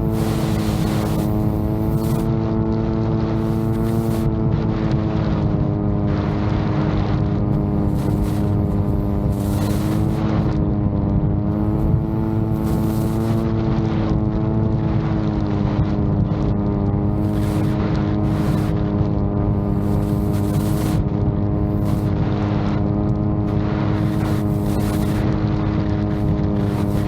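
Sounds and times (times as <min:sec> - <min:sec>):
drone propellers droning: 0:00.0 - 0:27.0
wind rumbling on microphone: 0:00.0 - 0:27.0.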